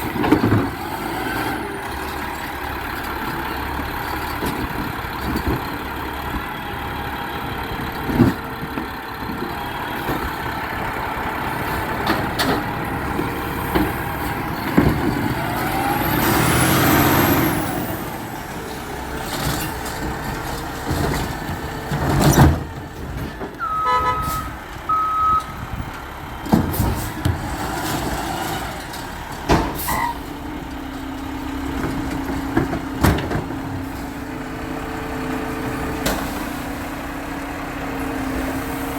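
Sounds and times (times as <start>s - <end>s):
garbage truck engine running: 0.0s - 38.9s
reversing beeps: 23.6s - 25.6s
clanks and knocks: 31.6s - 34.1s.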